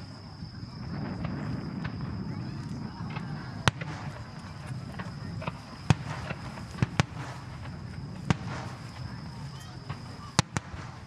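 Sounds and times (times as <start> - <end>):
faint crackling: 0.8 - 11.0
fireworks shells bursting: 3.1 - 11.0.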